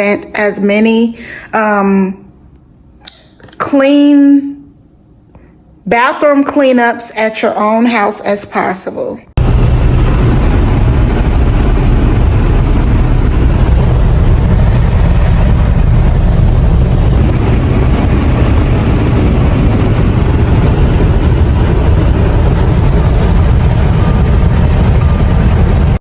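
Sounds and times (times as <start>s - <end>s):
car road and engine rumble: 9.4s - 26.0s.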